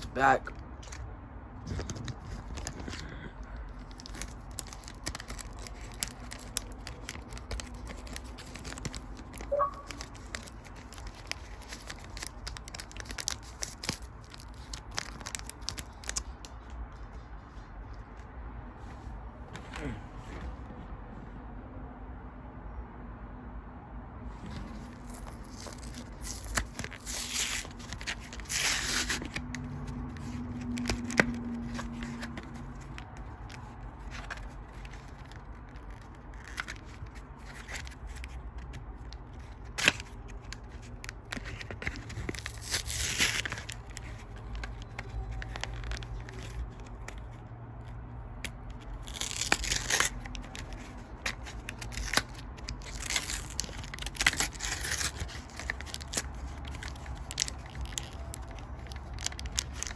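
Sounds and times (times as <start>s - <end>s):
foil wrappers tearing and crinkling: 3.7s - 16.5s, 24.7s - 47.3s, 48.4s - 59.9s.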